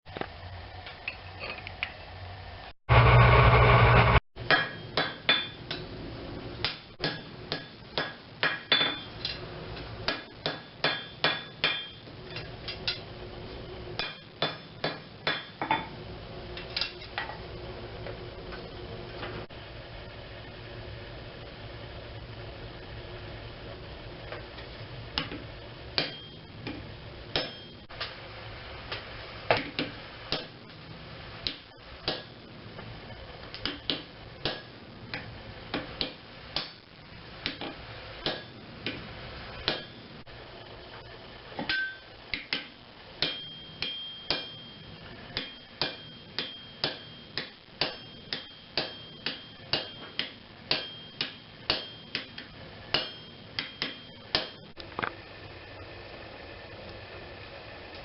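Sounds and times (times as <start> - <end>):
steady hum: 0.1 - 58.0
hammer striking metal on anvil: 4.0 - 5.9, 6.6 - 9.4, 10.1 - 13.0, 14.0 - 16.0, 26.0 - 26.4, 27.3 - 27.8, 37.4 - 39.0, 39.6 - 40.0, 41.6 - 44.8, 45.4 - 54.7.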